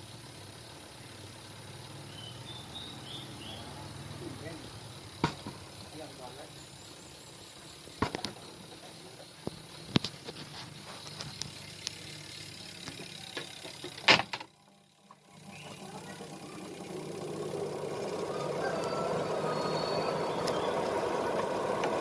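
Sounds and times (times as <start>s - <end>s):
sharp knocks on machine: 5.2s - 5.6s
washing machine motor humming: 12.4s - 22.0s
washing machine running: 12.5s - 22.0s.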